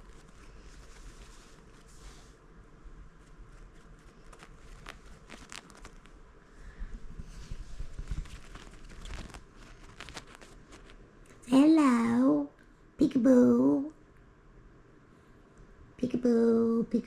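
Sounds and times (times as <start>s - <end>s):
parrot rustling in bedding: 0.0s - 11.1s.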